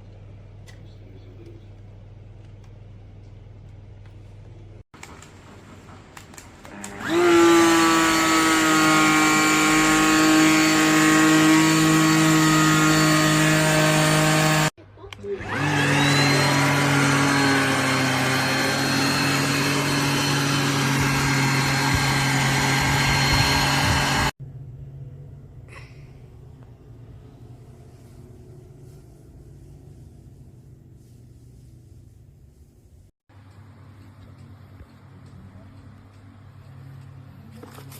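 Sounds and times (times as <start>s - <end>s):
vacuum cleaner motor whining: 6.2s - 24.4s.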